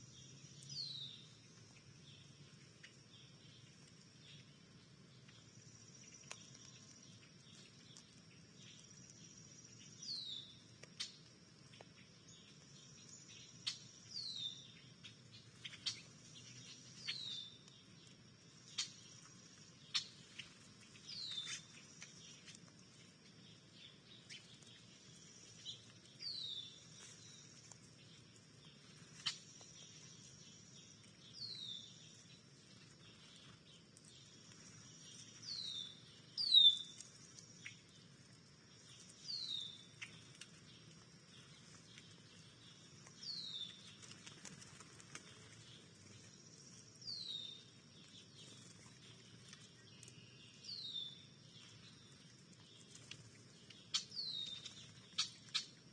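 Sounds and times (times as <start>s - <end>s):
songbird down-slurred call: 35.4s - 36.9s.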